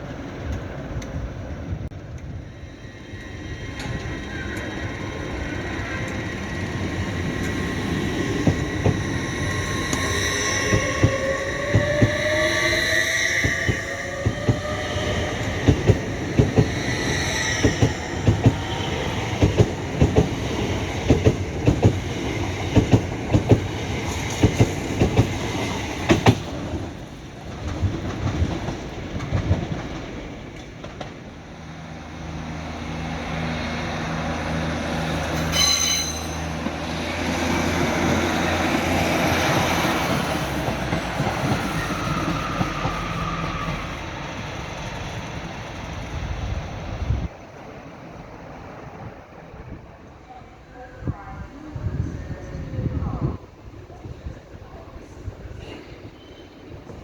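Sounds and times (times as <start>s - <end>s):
low train drone: 0.0s - 57.0s
wheel squeal: 7.3s - 19.0s, 35.3s - 36.8s.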